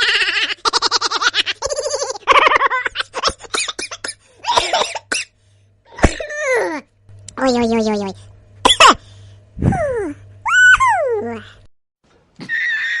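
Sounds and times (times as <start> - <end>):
person laughing: 0.0 - 3.6.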